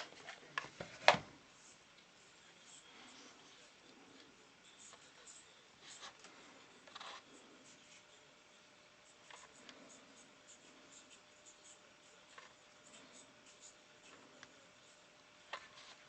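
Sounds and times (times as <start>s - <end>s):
light scratching: 2.7s - 8.1s, 9.0s - 16.0s.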